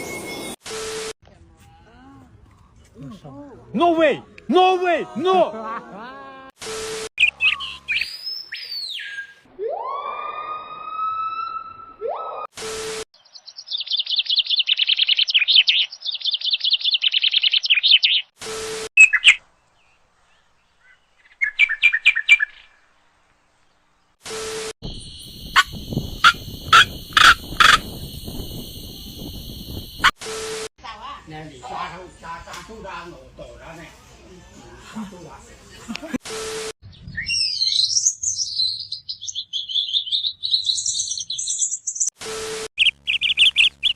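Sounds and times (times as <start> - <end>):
bird chirps: 7.2 - 9.4, 13.2 - 18.3, 19.0 - 22.8, 36.8 - 42.1, 42.8 - 43.9
birds whistling: 7.2 - 9.5, 20.8 - 22.8, 24.9 - 30.1, 36.9 - 42.1, 42.8 - 43.9
bird chattering trill: 25.2 - 28.2.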